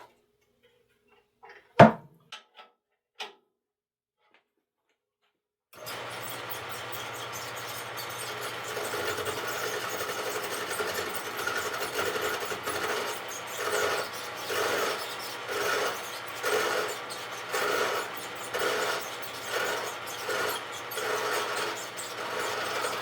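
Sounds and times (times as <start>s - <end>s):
lathe motor hum: 5.8s - 23.0s
turning tool scraping wood: 5.8s - 23.0s.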